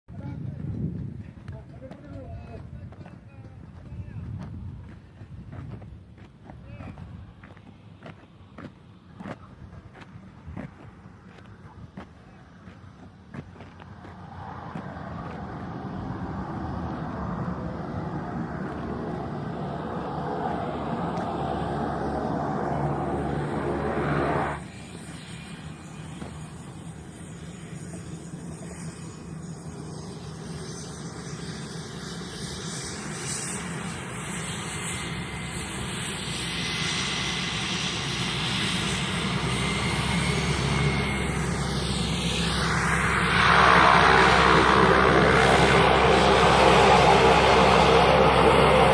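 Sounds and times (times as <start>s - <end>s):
turboprop aircraft engine: 0.0s - 48.9s
thin high whine: 13.9s - 48.9s.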